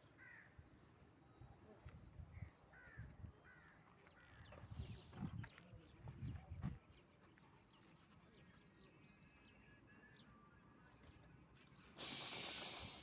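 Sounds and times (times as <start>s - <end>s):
faint birds chirping: 0.0s - 13.0s
loud hiss: 12.0s - 13.0s.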